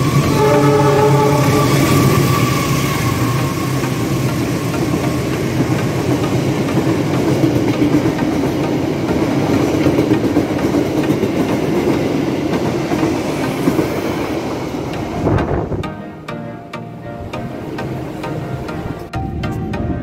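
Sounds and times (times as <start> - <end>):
train wheels running on rails: 0.0 - 16.0.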